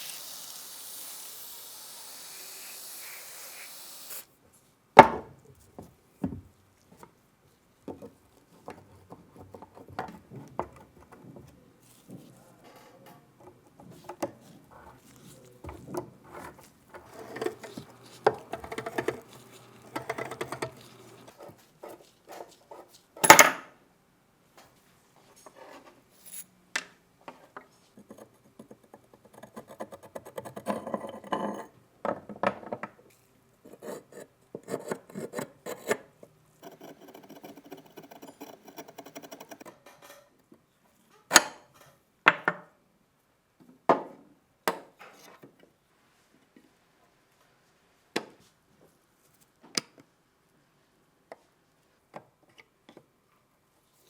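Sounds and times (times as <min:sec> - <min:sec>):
scraping on metal and wood: 0:11.8 - 0:23.1, 0:33.7 - 0:40.2.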